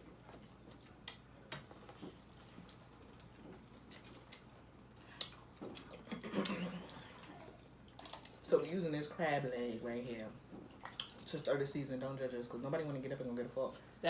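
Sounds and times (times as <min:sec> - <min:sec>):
crab shells cracking: 0:07.2 - 0:08.5.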